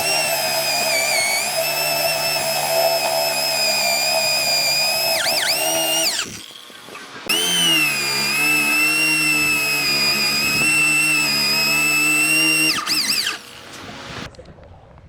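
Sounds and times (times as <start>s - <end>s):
electric power tool whining: 0.0s - 14.3s.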